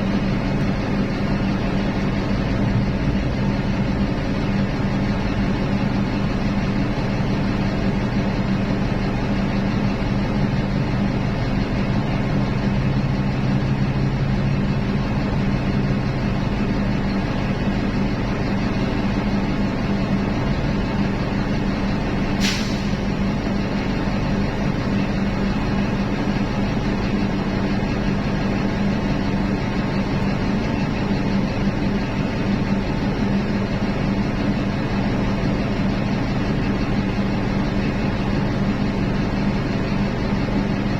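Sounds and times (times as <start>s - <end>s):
diesel engines droning: 0.0s - 40.9s
short sharp hiss: 22.4s - 23.1s.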